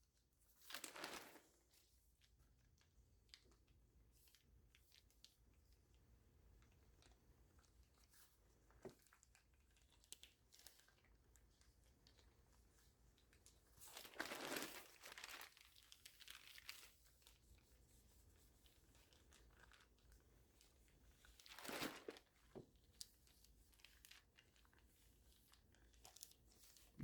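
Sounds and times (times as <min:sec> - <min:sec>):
plastic sheet crinkling: 0:00.7 - 0:01.5, 0:13.2 - 0:17.4, 0:21.3 - 0:22.3.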